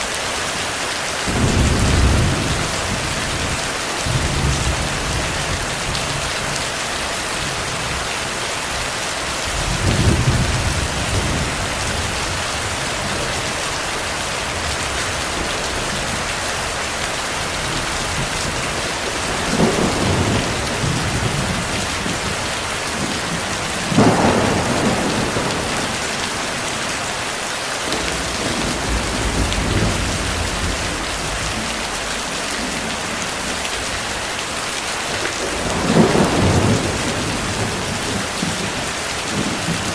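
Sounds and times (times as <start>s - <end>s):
heavy rain hissing: 0.0s - 39.9s
distant thunder rumbles: 17.4s - 26.9s, 27.9s - 34.0s, 35.1s - 39.9s.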